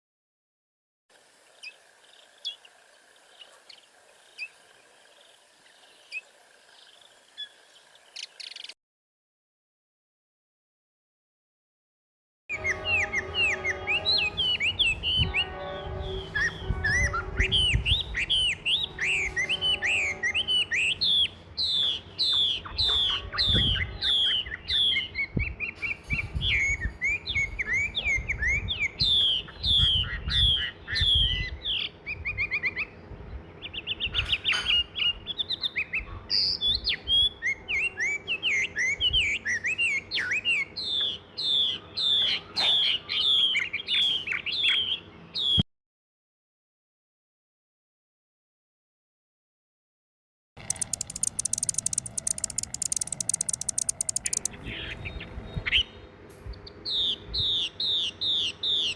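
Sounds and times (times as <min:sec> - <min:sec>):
songbirds chirping: 0:01.4 - 0:08.8, 0:50.6 - 0:58.9.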